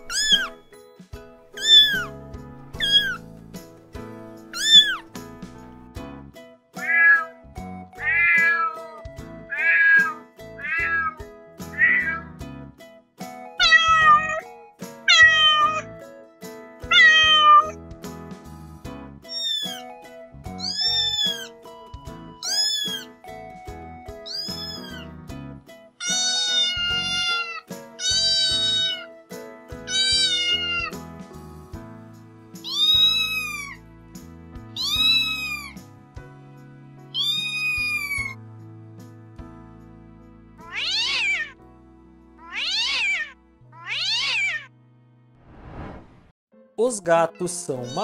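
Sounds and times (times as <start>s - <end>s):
kittens meowing: 0.0s - 0.6s, 1.6s - 2.1s, 2.7s - 3.2s, 4.5s - 5.1s, 6.8s - 7.4s, 8.0s - 12.4s, 13.6s - 14.5s, 15.1s - 16.0s, 16.9s - 17.8s, 19.2s - 19.9s, 20.5s - 21.6s, 22.4s - 23.2s, 24.2s - 25.2s, 26.0s - 29.2s, 29.8s - 31.0s, 32.6s - 33.8s, 34.8s - 35.8s, 37.2s - 38.4s, 40.6s - 41.6s, 42.4s - 44.7s
soft background music: 0.0s - 45.3s, 46.6s - 48.0s.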